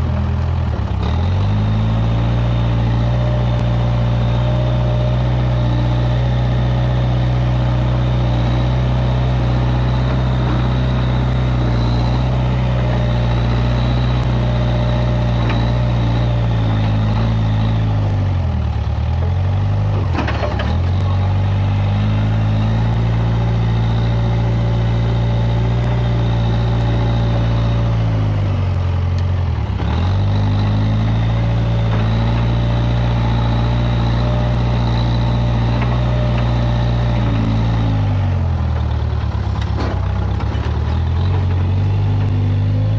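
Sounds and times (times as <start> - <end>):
backhoe engine running: 0.0 - 42.9.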